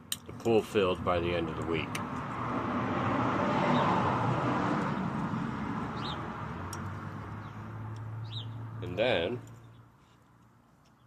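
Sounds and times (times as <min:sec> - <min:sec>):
vehicle passing by: 0:01.0 - 0:09.2
bird chirp: 0:05.9 - 0:06.3, 0:07.3 - 0:08.6.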